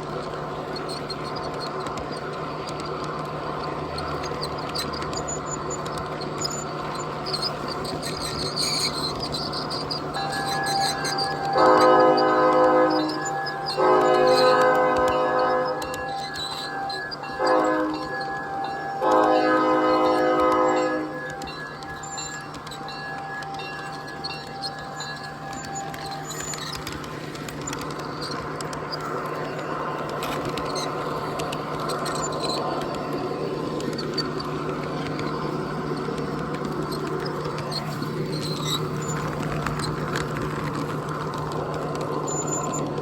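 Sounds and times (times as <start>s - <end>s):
train rolling past: 0.0s - 43.0s
wheels squeaking on rails: 0.0s - 43.0s
train horn: 10.2s - 21.5s.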